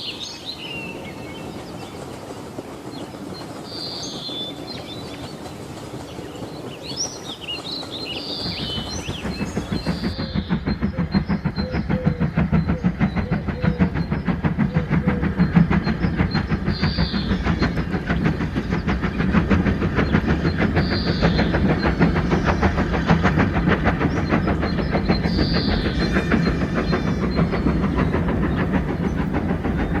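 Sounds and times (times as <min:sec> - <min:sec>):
train running: 0:00.0 - 0:30.0.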